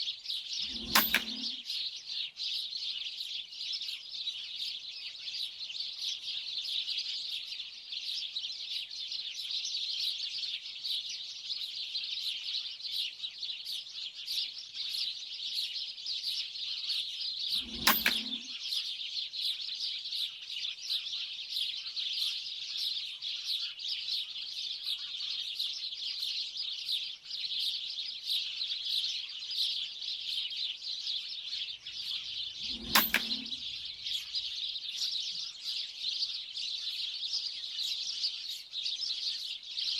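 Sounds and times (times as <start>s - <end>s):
flock of birds chirping: 0.0s - 39.9s.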